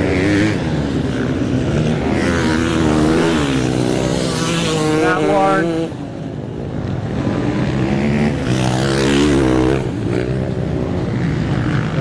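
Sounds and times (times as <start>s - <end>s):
dirt bike engines revving: 0.0s - 12.0s
dirt bike accelerating past: 7.2s - 12.0s.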